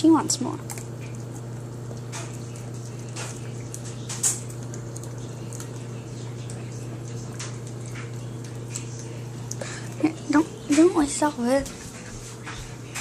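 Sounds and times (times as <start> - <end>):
steady low hum: 0.0 - 13.0
dog licking and smacking: 0.7 - 9.6.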